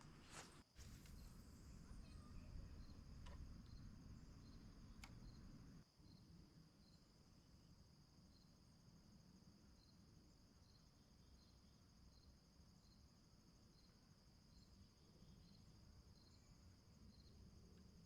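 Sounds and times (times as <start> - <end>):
faint clicks: 0.0 - 5.8
crickets trilling: 0.2 - 7.0
low rumble: 0.8 - 5.8.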